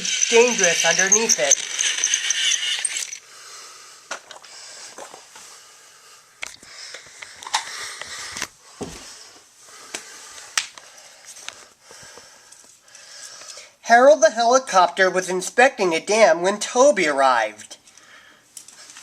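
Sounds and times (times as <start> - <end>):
toy train whirring: 0.0 - 3.2.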